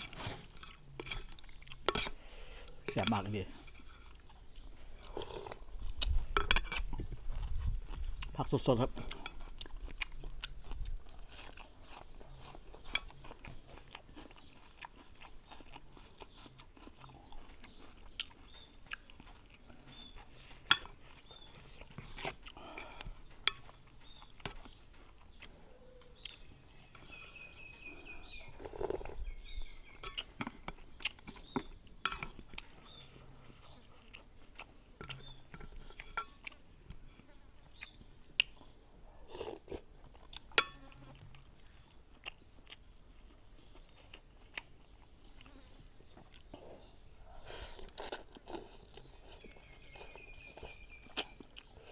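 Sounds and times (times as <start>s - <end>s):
person chewing crunchy vegetables: 0.0s - 51.9s.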